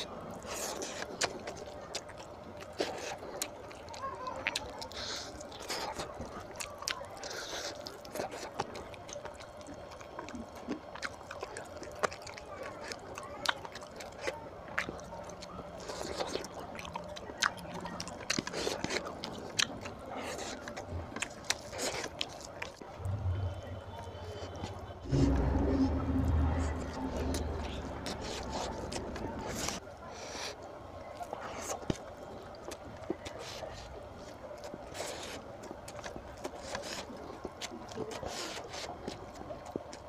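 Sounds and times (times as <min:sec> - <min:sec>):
man chewing wet mouth clicks: 0:00.0 - 0:22.9, 0:31.2 - 0:40.0.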